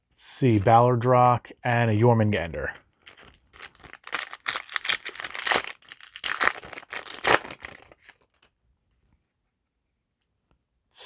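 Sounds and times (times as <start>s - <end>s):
foil wrapper crinkling and tearing: 3.0s - 8.4s.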